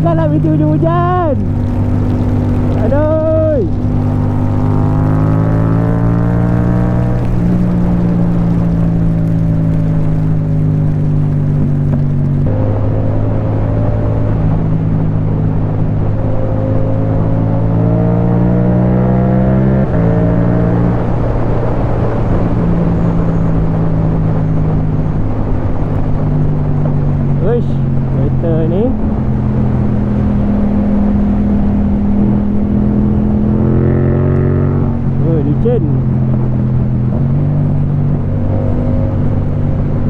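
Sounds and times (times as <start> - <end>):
motorcycle engine shifting up: 0.0 - 17.6
wind and rain noise: 0.0 - 40.0.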